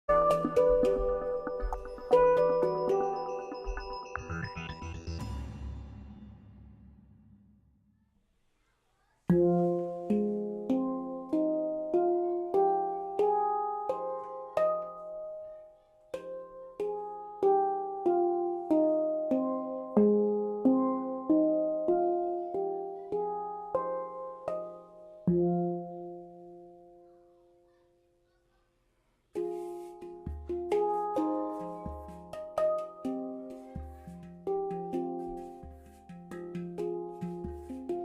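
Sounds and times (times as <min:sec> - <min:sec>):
handpan ringing notes: 0:00.1 - 0:05.5, 0:09.3 - 0:27.0, 0:29.4 - 0:38.0.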